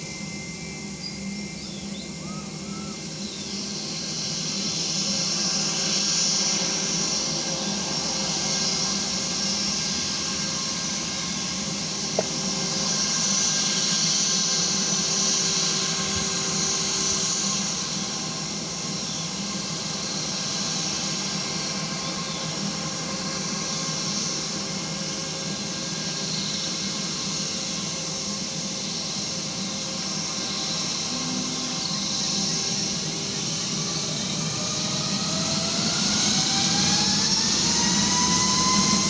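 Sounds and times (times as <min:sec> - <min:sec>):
jet engines rushing hiss: 0:00.0 - 0:39.0.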